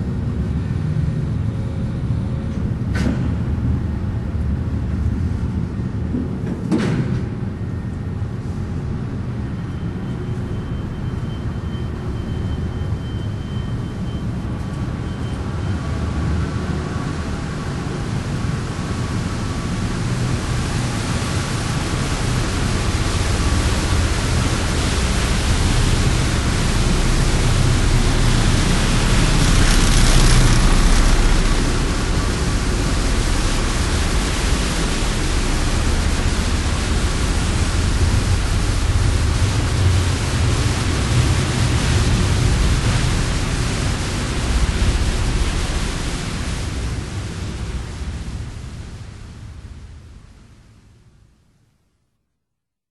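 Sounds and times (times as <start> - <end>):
ferry engines rumbling: 0.0 - 50.5
rushing water hiss: 15.4 - 50.2.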